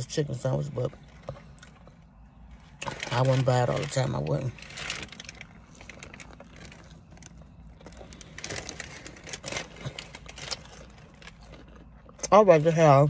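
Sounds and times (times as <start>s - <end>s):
steady low hum: 0.0s - 13.0s
chewing with mouth clicks: 0.9s - 3.0s, 5.1s - 12.4s
food wrapping rustling: 1.5s - 12.2s.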